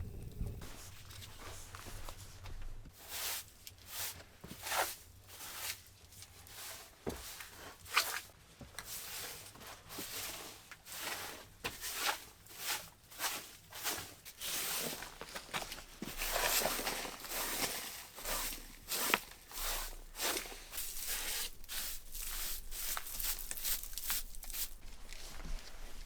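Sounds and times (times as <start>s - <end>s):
footsteps crunching through snow: 13.2s - 26.0s.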